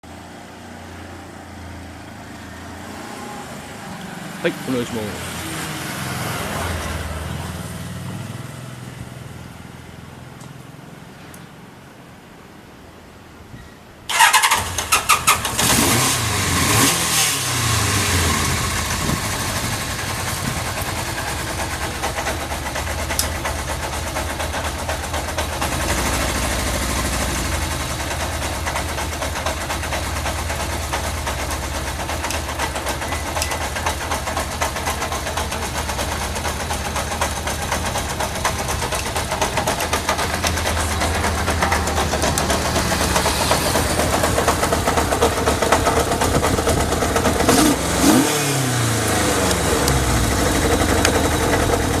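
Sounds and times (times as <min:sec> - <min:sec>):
electric starter cranking: 0:14.1 - 0:16.2
motorcycle engine revving and idling: 0:14.1 - 0:52.0.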